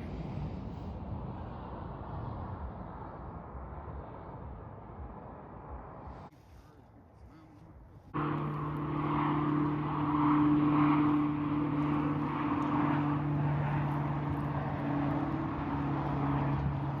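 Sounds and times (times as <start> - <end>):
engine running with hiss: 8.2 - 17.0.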